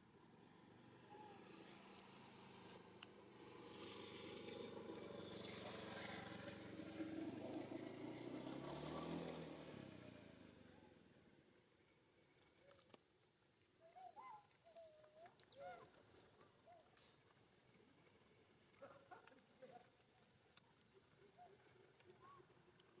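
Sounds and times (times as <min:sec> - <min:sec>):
vehicle engine passing: 0:00.3 - 0:11.0.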